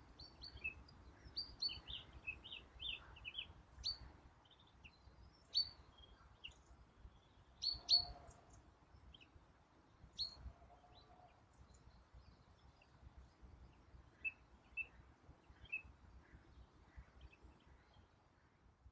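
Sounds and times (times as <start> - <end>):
faint outdoor background: 0.0 - 18.9
birds chirping: 0.1 - 9.4.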